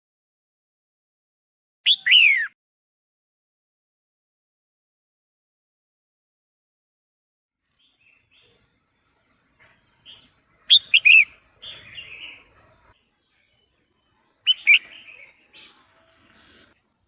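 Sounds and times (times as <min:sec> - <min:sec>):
bulbul calling: 0:10.1 - 0:12.9, 0:14.4 - 0:16.8.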